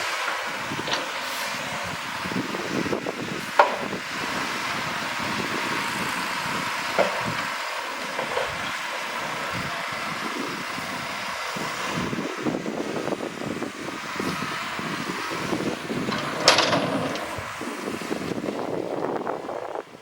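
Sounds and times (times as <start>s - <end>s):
heavy machinery engine: 0.0s - 20.0s
knocking and rattling: 16.0s - 17.5s.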